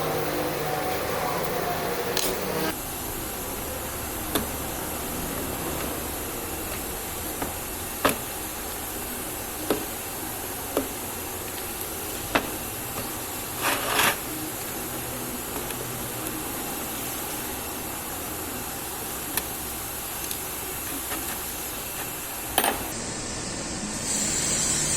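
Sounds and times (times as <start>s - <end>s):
steady background hiss: 0.0s - 24.9s
scraping rustle: 13.6s - 14.3s.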